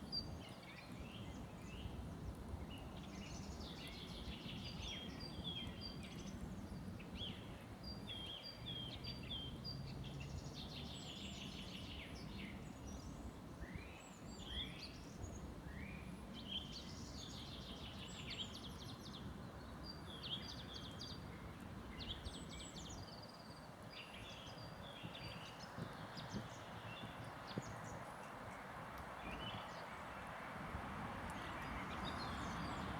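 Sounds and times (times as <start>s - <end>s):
songbirds singing: 0.0s - 30.3s, 31.2s - 32.9s.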